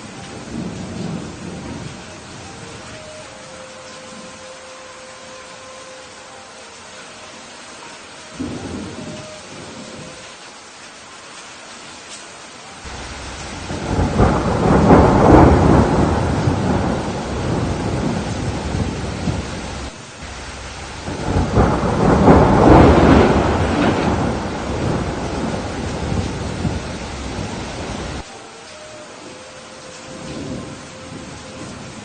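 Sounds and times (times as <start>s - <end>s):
rain hissing: 0.0s - 32.0s
rolling thunder: 8.4s - 10.2s, 12.9s - 28.2s.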